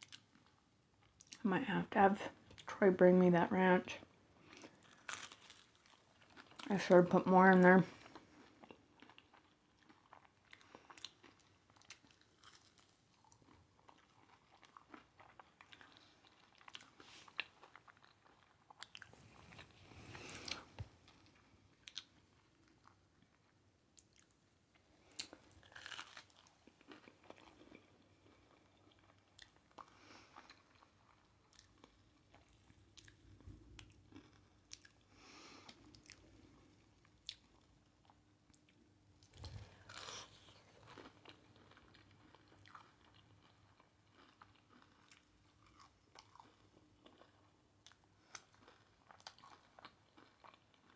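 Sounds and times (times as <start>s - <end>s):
chewing and crunching food: 0.0s - 1.4s, 2.3s - 2.8s, 3.5s - 50.9s.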